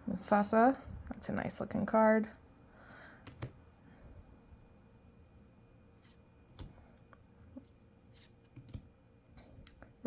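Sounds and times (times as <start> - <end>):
trading cards clicking: 3.3 - 3.6, 8.4 - 8.9.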